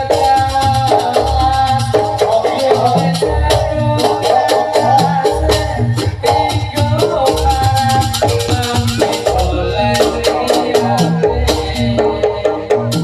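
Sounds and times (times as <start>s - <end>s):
pitched melody: 0.0s - 13.0s.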